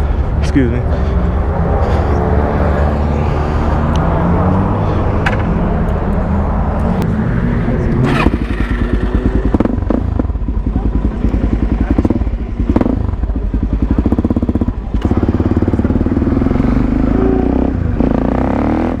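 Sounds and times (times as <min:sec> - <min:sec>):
motorcycle engine thumping: 0:05.2 - 0:05.6, 0:08.0 - 0:16.4.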